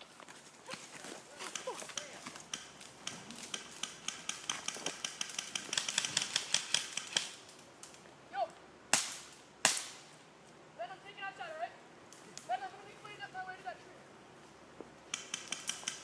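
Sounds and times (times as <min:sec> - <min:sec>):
airsoft guns firing clicks: 0:01.4 - 0:08.0, 0:08.9 - 0:10.0, 0:15.1 - 0:16.0
loud single crack: 0:08.9 - 0:10.1.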